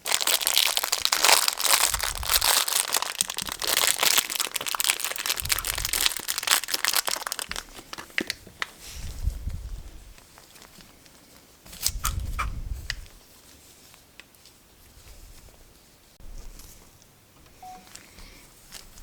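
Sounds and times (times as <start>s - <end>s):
wrapper crinkling and tearing: 0.0s - 8.8s.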